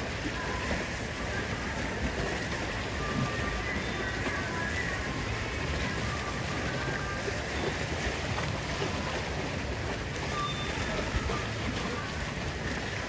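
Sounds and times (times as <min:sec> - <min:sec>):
sea water rushing: 0:00.0 - 0:13.0
wind: 0:00.0 - 0:13.0
faint short high tones: 0:10.3 - 0:11.4.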